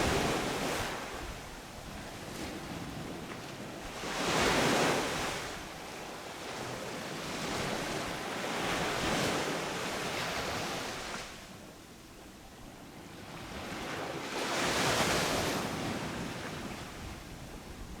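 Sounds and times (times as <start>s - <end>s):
ocean waves crashing on beach: 0.0s - 1.6s.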